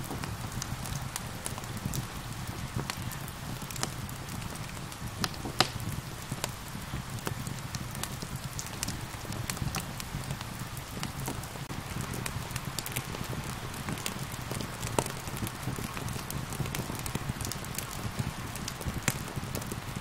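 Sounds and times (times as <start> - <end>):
gentle rain hiss: 0.0 - 20.0
wood fire crackling: 0.0 - 20.0.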